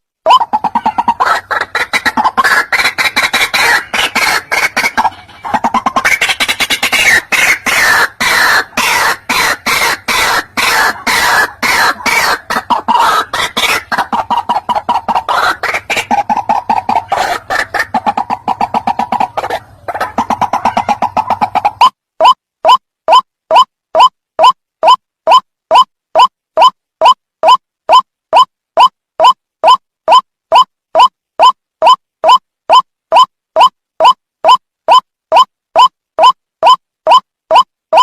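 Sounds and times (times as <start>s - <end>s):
waterhen croaking calls: 0.3s - 22.8s.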